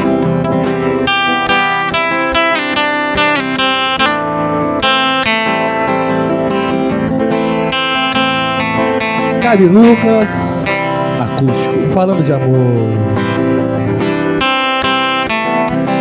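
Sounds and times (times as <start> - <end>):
acoustic guitar playing: 0.0 - 16.0.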